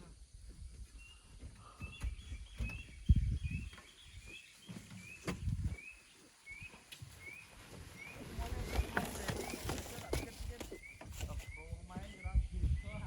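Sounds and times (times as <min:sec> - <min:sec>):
dull low thumps: 0:00.4 - 0:04.3, 0:05.2 - 0:05.8
bird chirping: 0:00.6 - 0:13.0.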